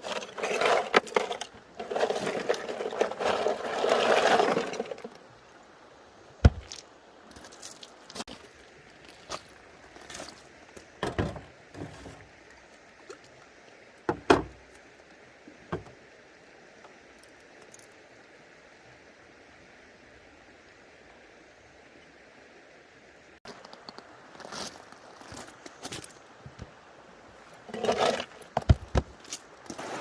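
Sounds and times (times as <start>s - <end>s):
knocks and clatters of handling: 0.0s - 5.2s, 11.0s - 12.3s, 27.7s - 30.0s
creek running: 0.0s - 30.0s.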